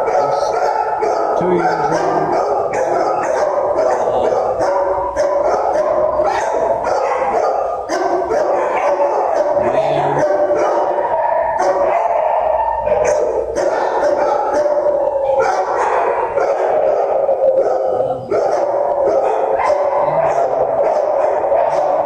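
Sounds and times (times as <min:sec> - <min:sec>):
dogs barking: 0:00.0 - 0:22.0
dogs howling: 0:00.0 - 0:22.0.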